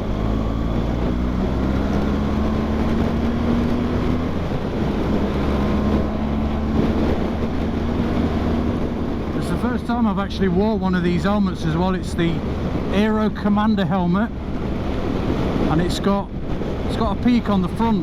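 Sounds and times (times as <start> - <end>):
motorcycle engine running: 0.0 - 10.8
heavy wind noise: 0.0 - 18.0.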